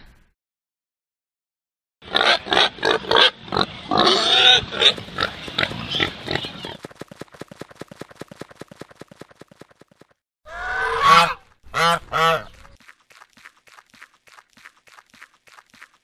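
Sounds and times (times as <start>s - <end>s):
pig grunting and oinking: 2.0s - 6.8s.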